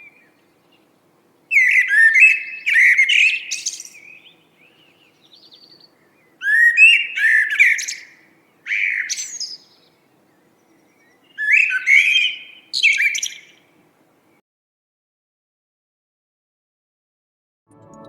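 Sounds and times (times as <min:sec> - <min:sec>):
songbird warbling: 0:00.0 - 0:13.8.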